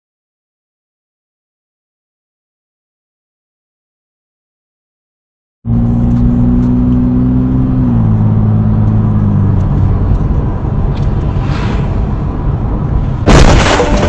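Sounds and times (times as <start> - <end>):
road noise: 5.6 - 14.0
car engine hum: 5.7 - 14.0.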